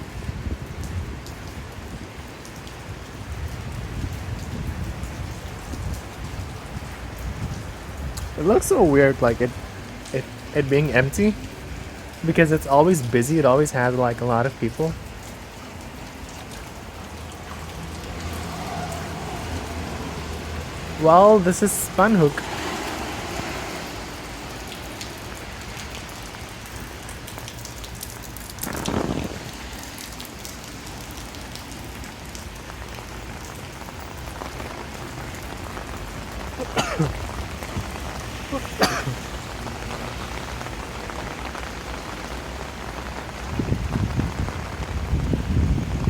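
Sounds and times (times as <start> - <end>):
wind buffeting microphone: 0.0 - 2.2, 3.2 - 9.8, 28.5 - 29.8, 43.4 - 46.0
rain falling on street: 0.0 - 46.0.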